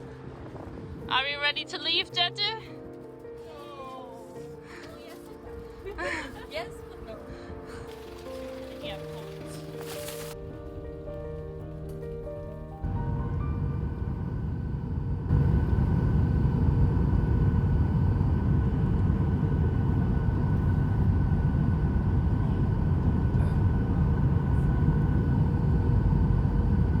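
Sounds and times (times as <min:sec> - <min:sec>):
vehicle rumble from inside: 0:07.6 - 0:27.0.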